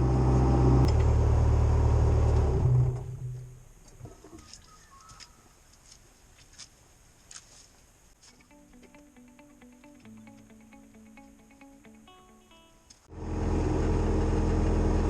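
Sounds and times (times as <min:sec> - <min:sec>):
diesel engine running: 0:00.0 - 0:03.5, 0:13.1 - 0:15.0
faint bird chirps: 0:04.4 - 0:05.6.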